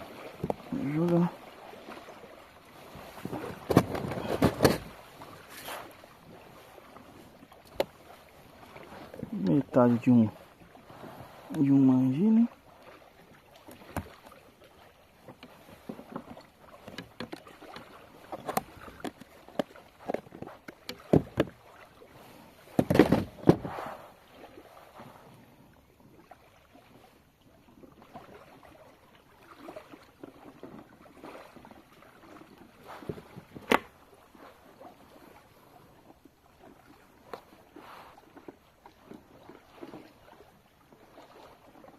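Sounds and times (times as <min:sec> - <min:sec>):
thump or splash: 0:03.0 - 0:06.0, 0:13.6 - 0:14.4, 0:15.8 - 0:21.8, 0:22.7 - 0:24.1, 0:32.8 - 0:34.0
gear knocking against kayak hull: 0:03.1 - 0:05.0, 0:15.2 - 0:21.6, 0:22.7 - 0:23.7.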